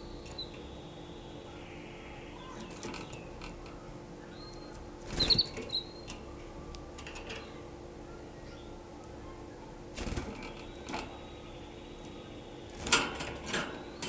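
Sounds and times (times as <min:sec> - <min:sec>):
canary chirping: 0:00.0 - 0:13.1.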